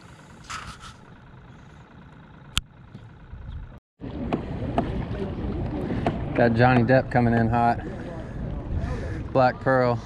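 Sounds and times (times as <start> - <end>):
wind: 0.0 - 10.0
water noise: 4.0 - 10.0.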